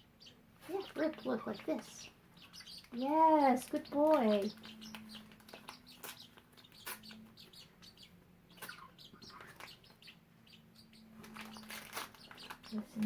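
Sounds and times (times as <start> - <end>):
budgies chirping: 0.0 - 13.0.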